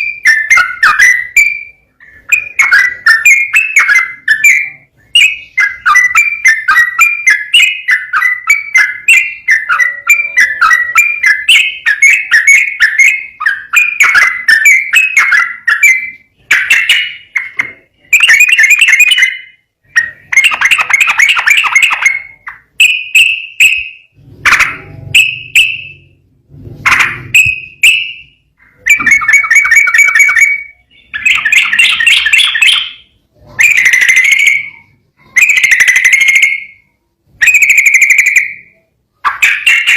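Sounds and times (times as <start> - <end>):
bird singing whistled notes: 0.0 - 24.2, 24.8 - 26.2, 27.3 - 39.9.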